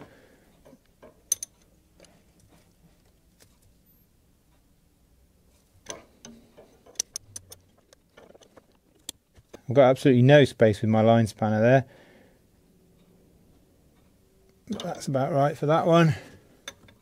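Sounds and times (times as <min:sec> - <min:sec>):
spanner metallic clicks: 0:01.3 - 0:01.7, 0:05.8 - 0:08.0.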